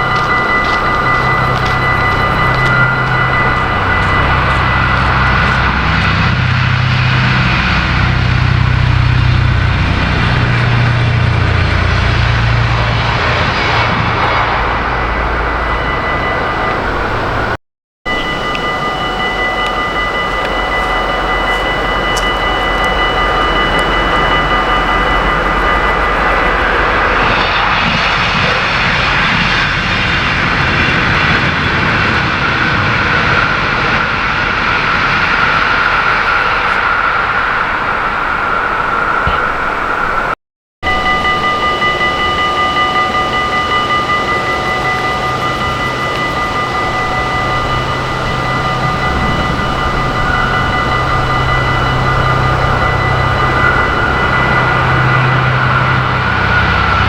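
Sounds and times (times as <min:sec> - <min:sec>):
steady high ringing tones: 0:00.0 - 0:57.0
train passing: 0:00.0 - 0:57.0.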